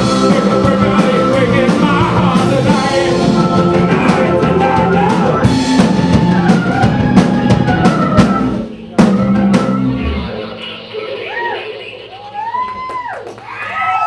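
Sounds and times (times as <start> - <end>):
drums striking: 0.0 - 10.7
rock band playing: 0.0 - 12.7.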